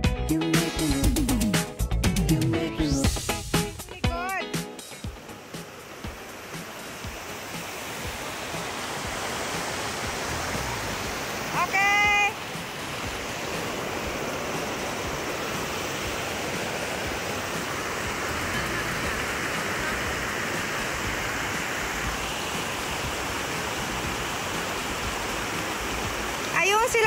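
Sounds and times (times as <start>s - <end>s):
stream flowing: 3.2s - 27.0s.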